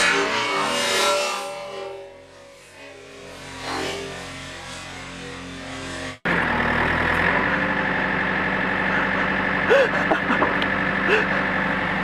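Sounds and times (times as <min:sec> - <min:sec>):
backhoe diesel engine whining: 0:04.2 - 0:12.0.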